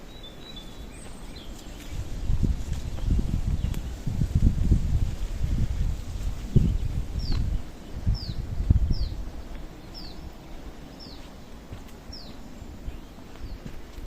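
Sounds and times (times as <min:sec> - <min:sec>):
footsteps: 0:01.0 - 0:07.8, 0:08.7 - 0:14.0.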